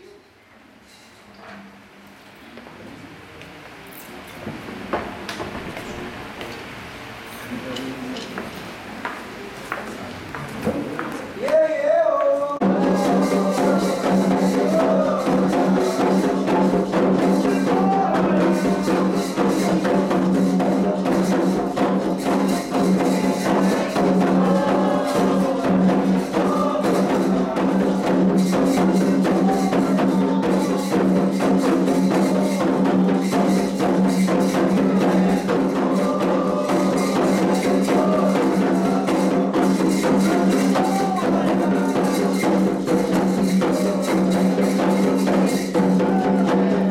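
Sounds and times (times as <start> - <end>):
faint singing: 11.4 - 46.9
hand drums playing rhythm: 12.6 - 46.9.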